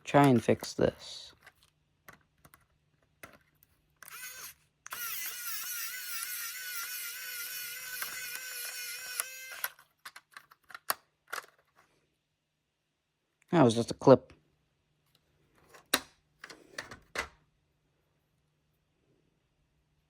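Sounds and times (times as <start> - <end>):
small plastic clicks: 1.3 - 11.8
power tool motor whining: 4.0 - 9.8.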